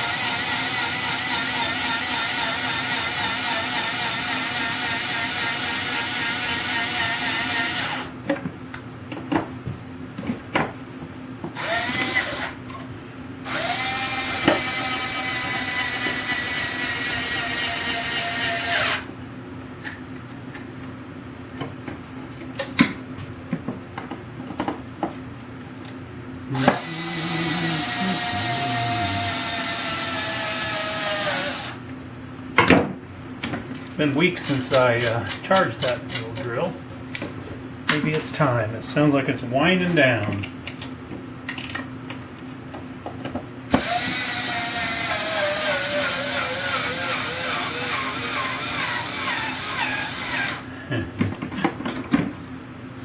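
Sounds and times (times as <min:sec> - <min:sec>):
cordless drill motor whining: 0:00.0 - 0:08.1, 0:11.6 - 0:12.6, 0:13.5 - 0:19.1, 0:26.5 - 0:31.8, 0:43.7 - 0:50.7.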